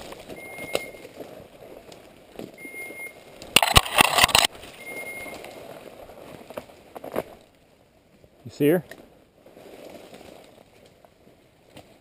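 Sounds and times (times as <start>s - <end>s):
brush crackling and scraping: 0.0s - 12.0s
rustling of walking through brush: 0.0s - 12.0s
dog collar electronic beeps: 0.4s - 1.0s, 2.6s - 3.2s, 4.8s - 5.4s.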